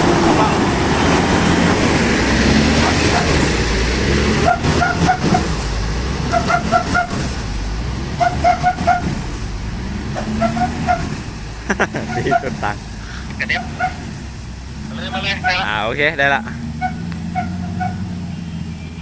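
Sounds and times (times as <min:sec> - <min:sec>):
truck diesel engine rumbling: 0:00.0 - 0:19.0.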